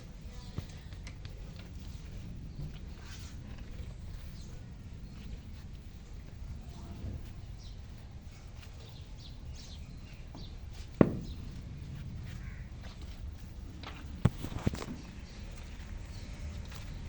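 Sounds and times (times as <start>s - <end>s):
donkey hooves striking ground: 0.0s - 17.0s
low background noise: 0.0s - 17.0s
sharp loud knock: 11.0s - 11.5s.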